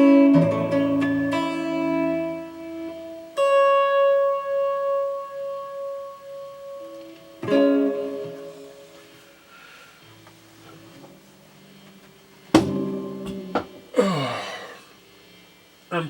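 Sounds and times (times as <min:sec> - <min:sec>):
electric guitar chords ringing: 0:00.0 - 0:09.1.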